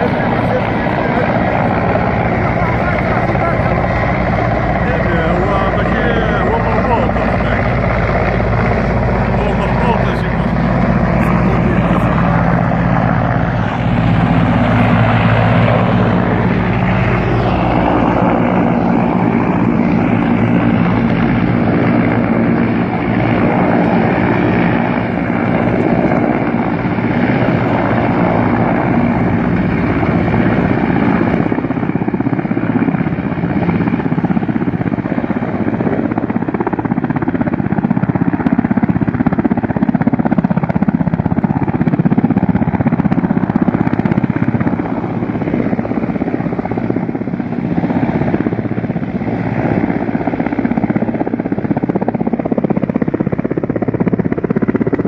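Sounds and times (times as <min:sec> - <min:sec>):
loud engine drone: 0:00.0 - 0:32.0.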